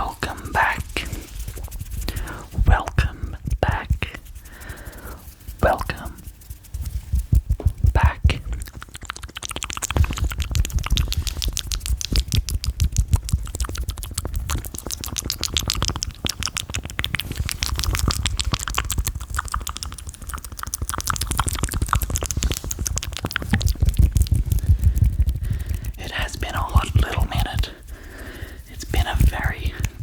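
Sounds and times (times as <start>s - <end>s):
wet mouth clicks and pops: 0.0s - 30.0s
hands thumping on microphone: 7.1s - 8.6s.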